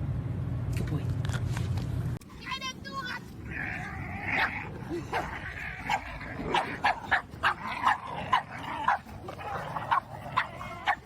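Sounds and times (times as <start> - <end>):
dog barking: 5.1 - 11.0.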